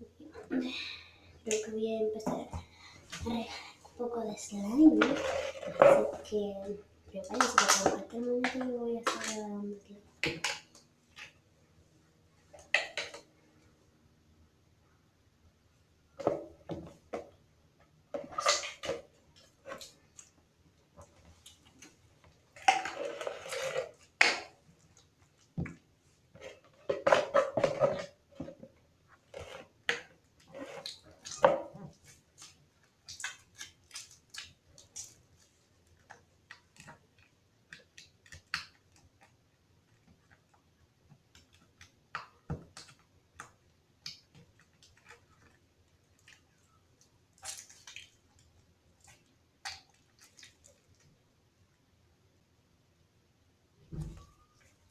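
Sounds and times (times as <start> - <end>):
slime squelching: 29.3 - 51.1.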